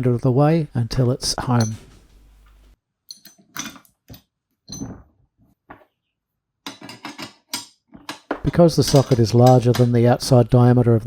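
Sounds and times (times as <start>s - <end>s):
metal tool clinks and knocks: 1.6s - 1.9s, 3.1s - 5.1s, 6.7s - 10.0s.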